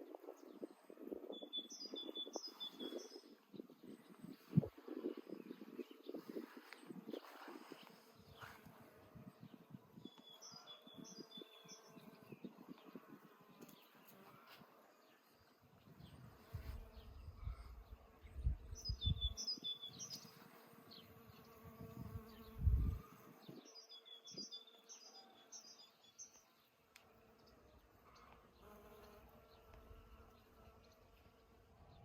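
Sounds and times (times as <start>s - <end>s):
bee buzzing: 16.2s - 25.0s, 26.9s - 31.6s.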